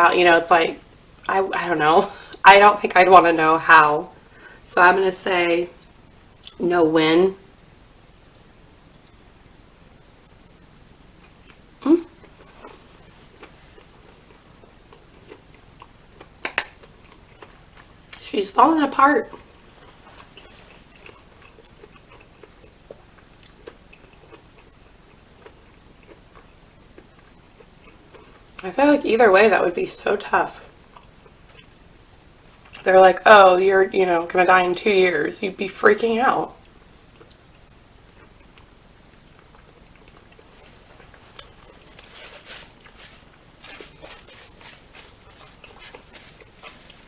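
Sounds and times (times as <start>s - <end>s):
person chewing food: 11.2s - 18.2s, 19.3s - 28.6s, 30.8s - 31.8s, 36.6s - 47.0s.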